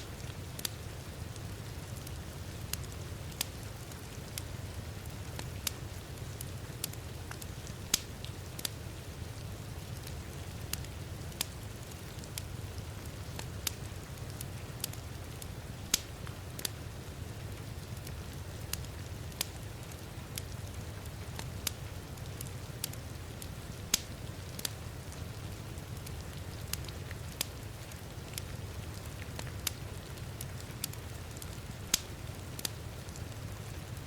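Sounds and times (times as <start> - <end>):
soft hiss of rain: 0.0 - 34.0
wood fire crackling: 0.0 - 34.0
sharp pops of fire: 7.9 - 8.7, 15.9 - 16.7, 23.9 - 24.7, 31.9 - 32.7.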